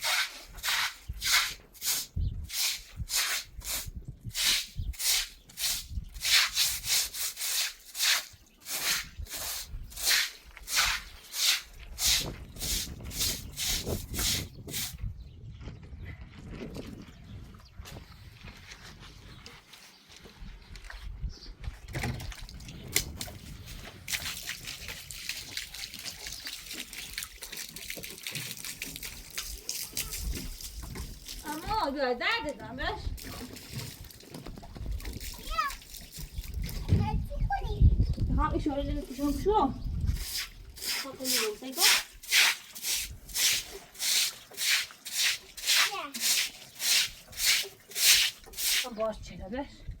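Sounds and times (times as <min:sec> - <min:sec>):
rubbing strokes back and forth: 0:00.0 - 0:15.0, 0:40.2 - 0:49.0
water trickling and splashing: 0:21.8 - 0:49.2.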